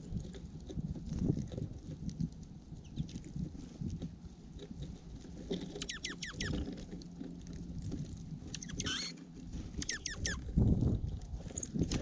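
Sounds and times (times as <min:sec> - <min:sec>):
birds pecking and rustling: 0:00.0 - 0:12.0
sharp downward bird chirps: 0:05.8 - 0:06.5.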